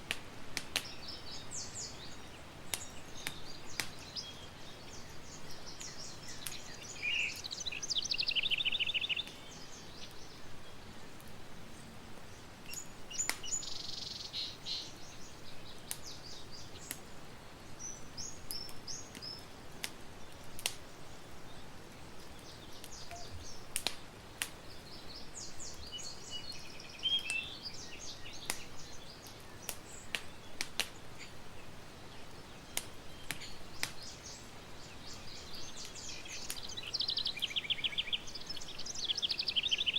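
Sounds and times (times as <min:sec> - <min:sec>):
campfire crackling and popping: 0:00.0 - 0:39.9
small birds trilling: 0:00.7 - 0:39.9.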